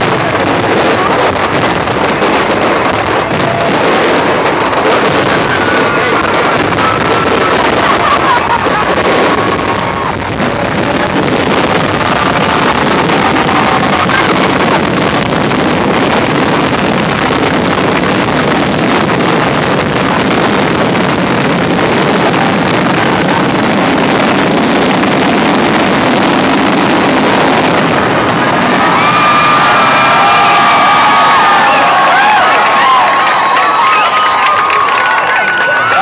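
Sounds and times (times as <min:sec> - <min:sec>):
crowd cheering and whistling: 0:00.0 - 0:36.0
fireworks bursting and crackling: 0:00.0 - 0:36.0.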